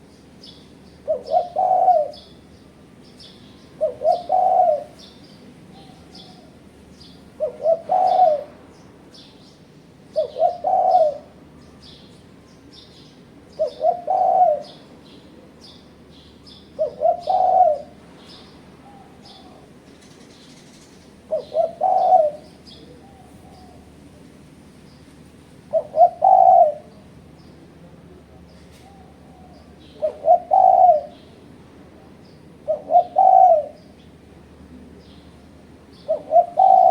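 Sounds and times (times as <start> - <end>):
small birds chirping: 0.0 - 24.0, 24.7 - 36.9
dove cooing: 1.0 - 2.5, 3.6 - 8.6, 10.1 - 11.5, 13.5 - 15.6, 16.5 - 18.1, 18.8 - 19.8, 20.5 - 24.1, 25.5 - 27.2, 28.3 - 31.4, 32.0 - 34.0, 34.8 - 36.9.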